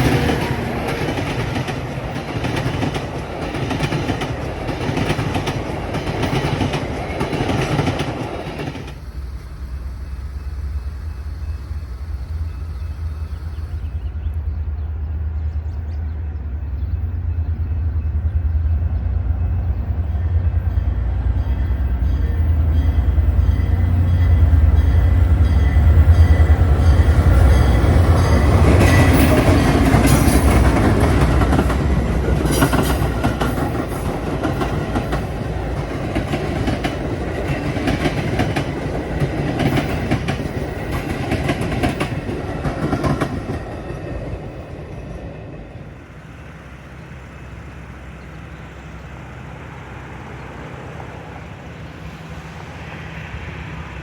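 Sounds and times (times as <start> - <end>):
train wheels clattering over rail joints: 0.0 - 9.1, 21.4 - 45.9
train rumbling: 0.0 - 54.0.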